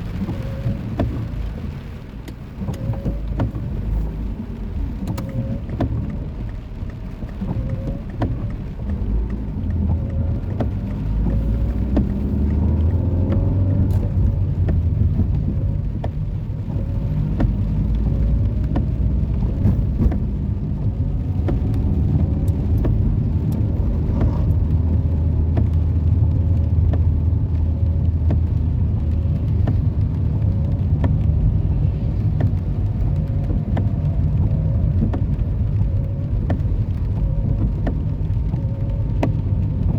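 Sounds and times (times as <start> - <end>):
raindrop ticks: 0.0 - 39.9
road traffic rumble: 0.0 - 39.9.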